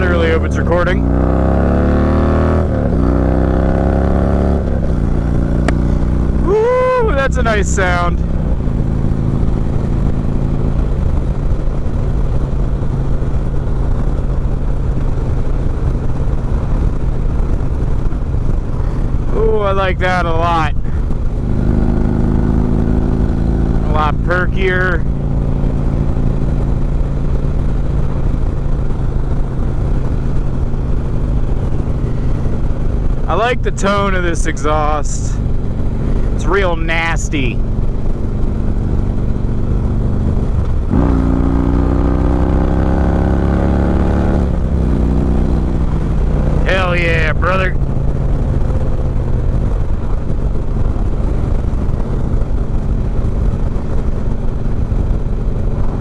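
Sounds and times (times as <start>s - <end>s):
motorcycle engine cruising: 0.0s - 56.0s
rushing noise: 40.3s - 54.1s.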